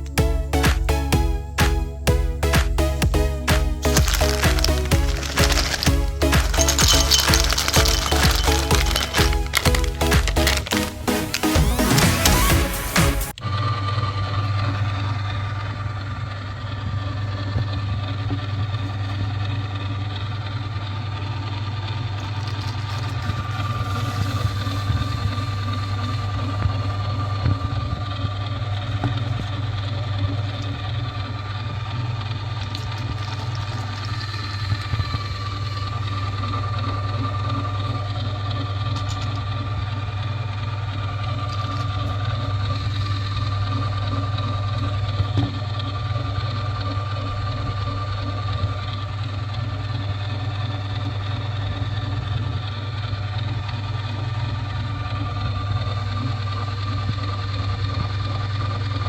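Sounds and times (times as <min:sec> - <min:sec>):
electric grinder motor running: 0:22.2 - 0:48.6
electric grinder motor humming: 0:22.6 - 0:28.0.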